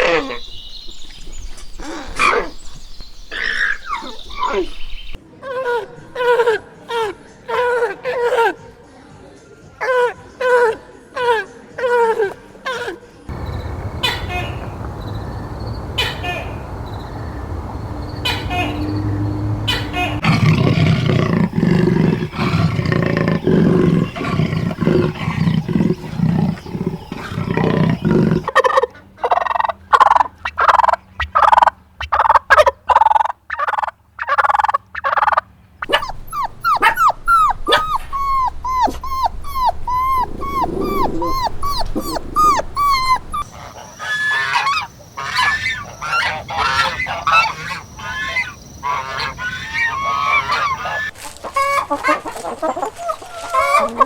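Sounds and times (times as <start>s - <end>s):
animal calls: 0.0s - 0.6s, 1.8s - 8.6s, 9.8s - 54.0s
short repeated animal calls: 35.9s - 45.8s.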